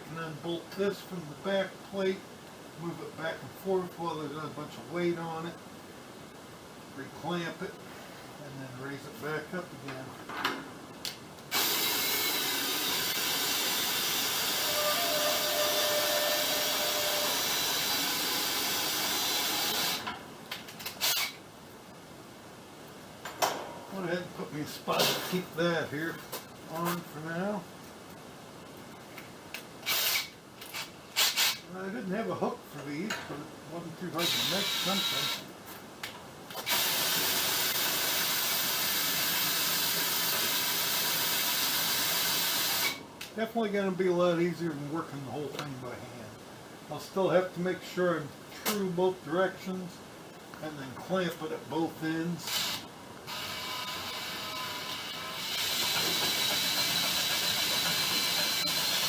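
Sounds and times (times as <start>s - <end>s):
loud steady hiss: 0.0s - 59.0s
cordless drill motor running: 11.5s - 20.0s, 21.0s - 21.4s, 29.8s - 30.3s, 34.2s - 35.4s, 36.6s - 43.0s, 52.5s - 59.0s
sharp clicks and knocks: 23.2s - 23.8s.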